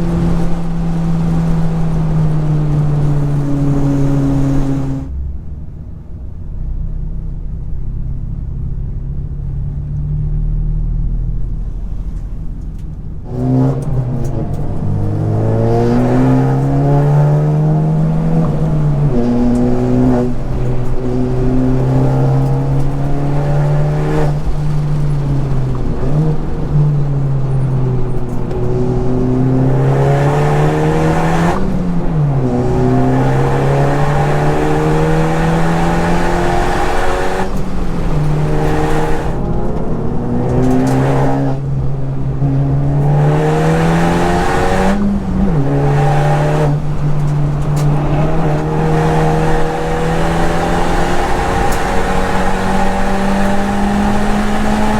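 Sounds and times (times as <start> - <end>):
car engine accelerating hard: 0.0 - 54.9.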